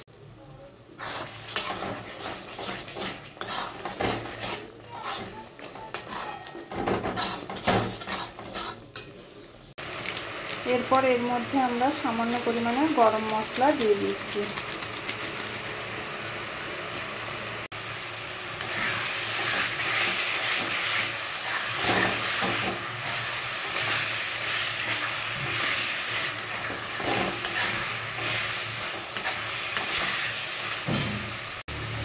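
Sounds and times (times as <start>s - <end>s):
paste sizzling in oil: 0.8s - 9.1s, 9.8s - 32.0s
metal spatula scraping pan: 1.0s - 9.2s, 18.6s - 31.2s.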